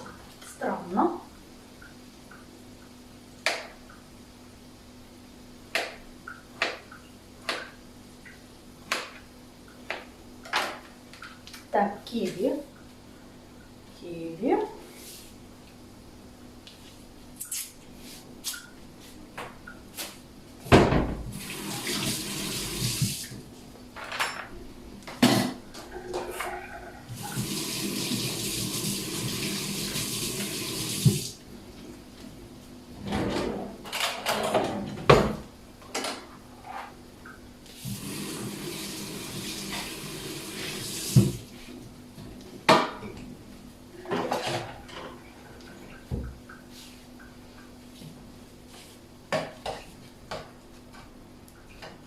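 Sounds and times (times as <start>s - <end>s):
tap running into a sink: 30.8s - 31.3s, 40.9s - 41.4s.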